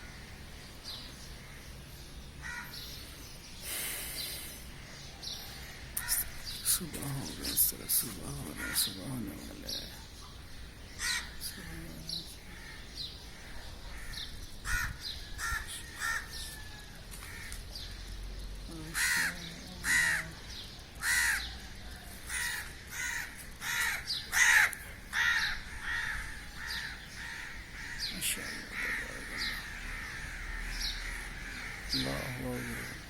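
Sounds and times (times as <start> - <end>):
crows cawing: 2.4 - 3.1, 5.6 - 6.5, 8.5 - 9.1, 11.0 - 11.9, 12.5 - 18.1, 18.9 - 21.7, 22.3 - 33.0.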